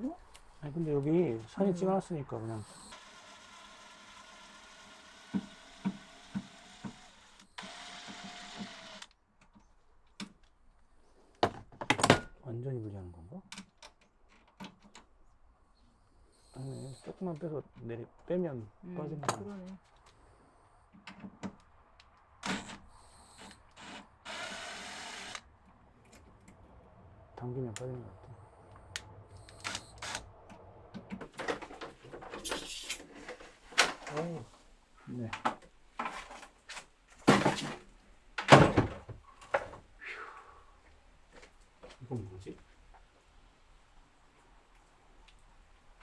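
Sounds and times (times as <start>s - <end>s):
small electric motor whining: 2.6s - 9.1s, 23.2s - 25.4s.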